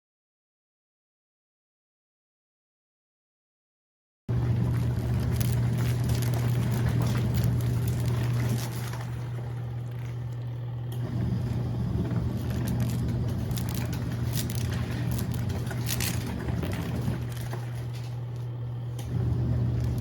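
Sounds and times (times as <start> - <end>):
washing machine motor humming: 4.3 - 20.0
water sloshing and splashing: 4.3 - 20.0.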